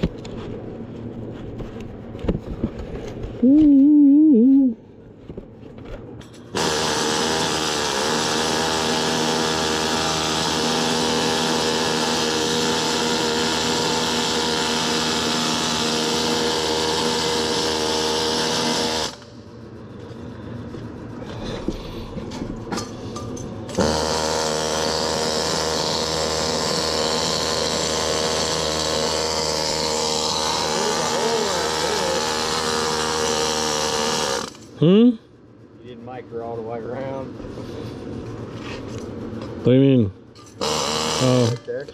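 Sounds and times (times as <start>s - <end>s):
welding arc buzzing crackle: 6.5s - 19.4s, 23.7s - 34.8s, 40.6s - 41.9s.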